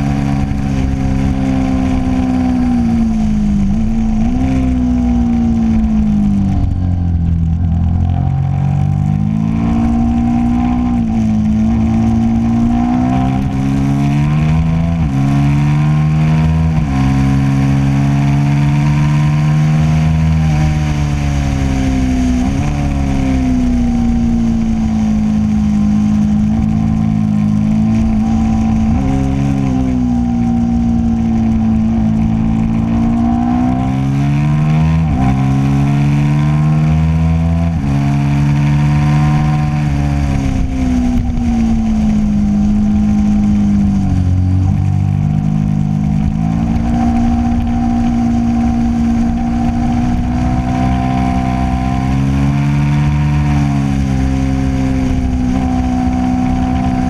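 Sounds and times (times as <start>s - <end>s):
motorcycle engine revving: 0.0s - 57.0s
wind rushing: 20.9s - 36.2s.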